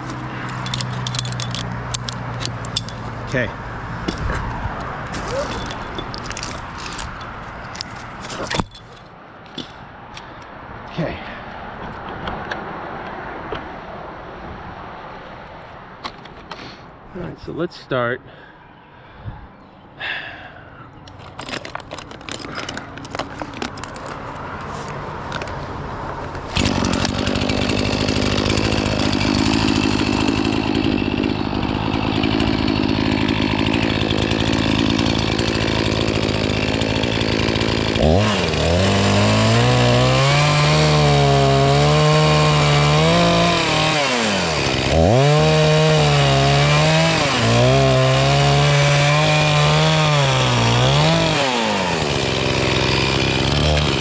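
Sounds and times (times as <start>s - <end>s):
chainsaw cutting wood: 26.5s - 54.0s.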